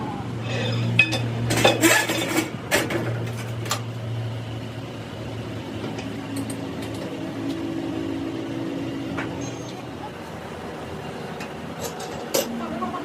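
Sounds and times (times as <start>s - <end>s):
metal parts clanking: 0.5s - 3.8s.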